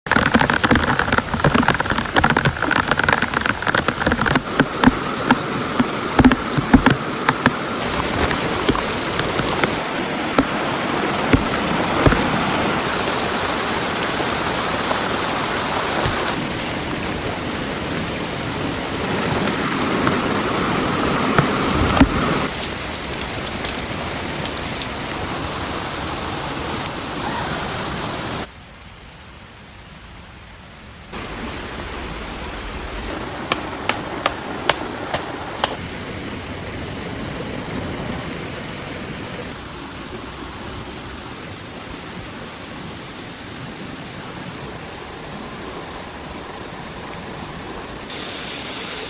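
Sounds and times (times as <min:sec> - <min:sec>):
raindrops clicking on surface: 0:00.1 - 0:16.7, 0:19.0 - 0:25.2
heavy rain: 0:00.1 - 0:28.5, 0:31.1 - 0:49.0.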